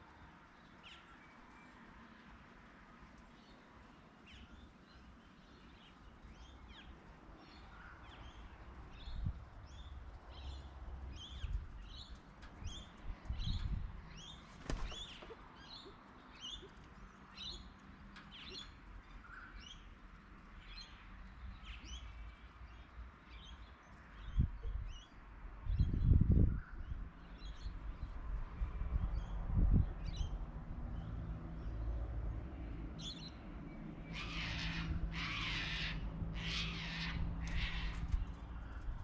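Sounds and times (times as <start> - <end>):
small birds chirping: 3.2 - 28.2.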